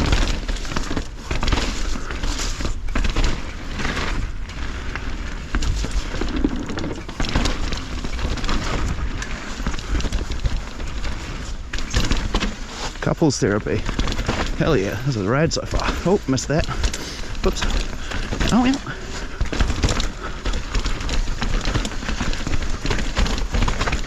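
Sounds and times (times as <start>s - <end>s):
bike rattling over bumps: 0.0s - 24.0s
bike tyres rolling on dirt: 0.0s - 24.0s.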